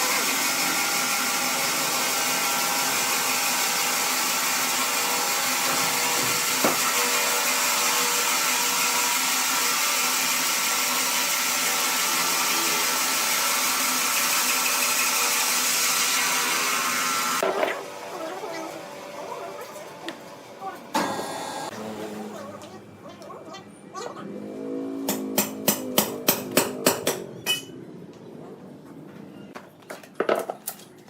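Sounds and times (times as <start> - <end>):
woodworking machine whining: 0.0 - 22.4.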